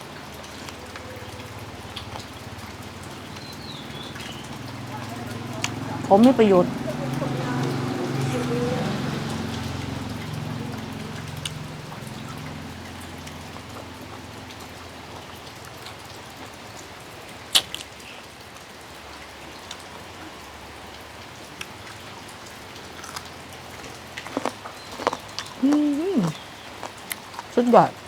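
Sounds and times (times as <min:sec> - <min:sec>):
steady rain: 0:00.0 - 0:28.0
drops ticking on a surface: 0:00.1 - 0:16.8.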